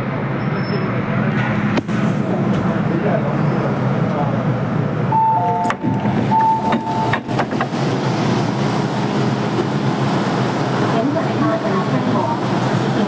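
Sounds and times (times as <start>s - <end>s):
train rumbling: 0.0s - 13.0s
train clicks: 5.6s - 8.4s.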